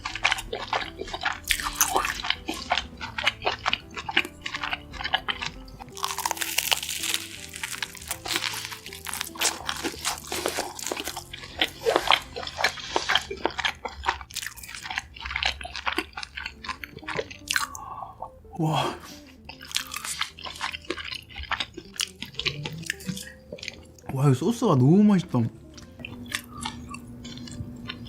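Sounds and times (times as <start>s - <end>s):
crunching and chewing food: 0.0s - 28.0s
person exclaiming: 18.6s - 19.0s.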